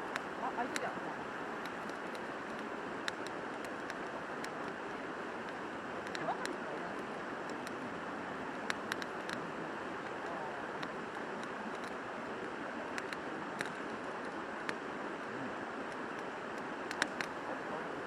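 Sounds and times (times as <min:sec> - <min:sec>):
sharp clicks: 0:01.6 - 0:07.9, 0:08.5 - 0:09.4, 0:10.0 - 0:14.8, 0:15.9 - 0:17.4.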